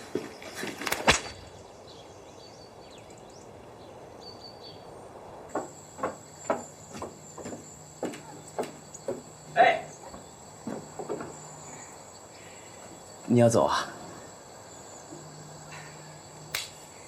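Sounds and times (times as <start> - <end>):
sharp knocks: 5.5 - 9.3
short knocks: 5.5 - 9.3, 10.0 - 11.4.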